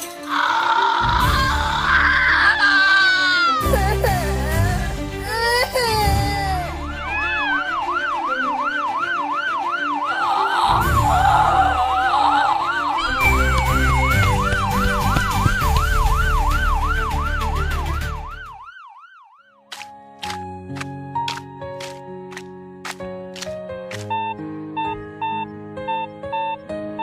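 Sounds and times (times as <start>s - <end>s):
background music: 0.0s - 18.8s, 19.7s - 27.0s
police siren wailing: 6.7s - 19.7s.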